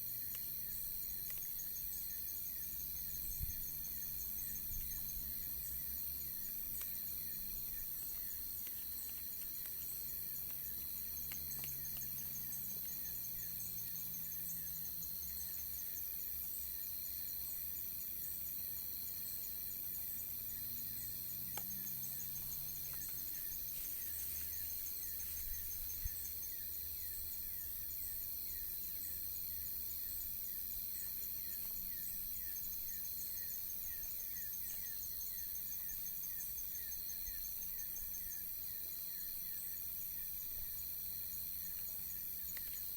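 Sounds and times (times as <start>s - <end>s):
constant high hiss: 0.0s - 42.9s
insects chirping: 0.0s - 42.9s.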